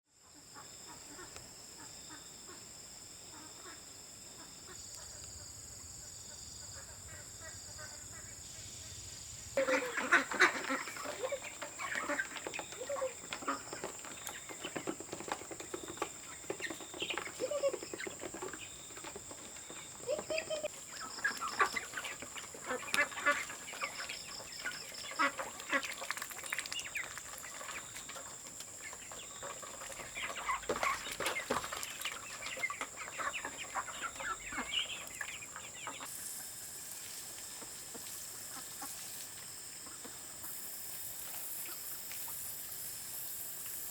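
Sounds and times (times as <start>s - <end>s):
chickens clucking and calling: 9.6s - 36.2s.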